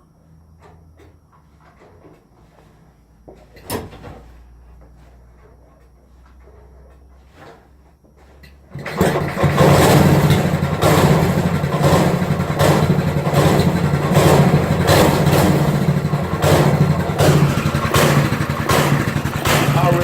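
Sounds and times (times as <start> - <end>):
small kart engine running: 8.8 - 20.0.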